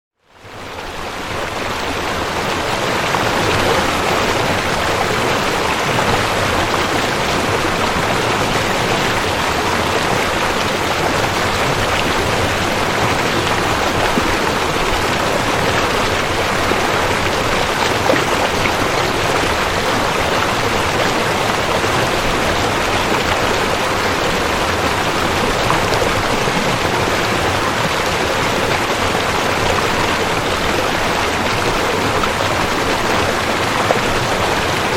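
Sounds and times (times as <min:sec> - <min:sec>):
waterfall rushing: 0:00.6 - 0:34.9.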